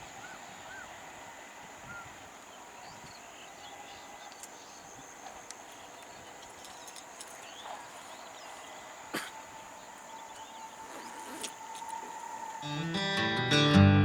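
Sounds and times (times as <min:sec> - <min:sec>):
insect buzz: 0:00.0 - 0:13.4
faint chirps and ticks: 0:01.8 - 0:12.6.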